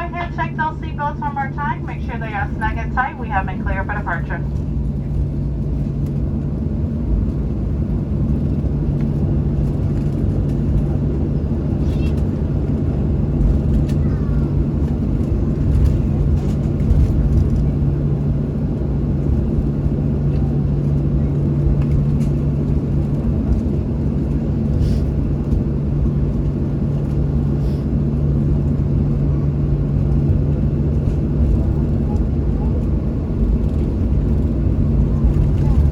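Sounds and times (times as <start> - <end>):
airplane cabin jet engine hum: 0.0 - 35.9.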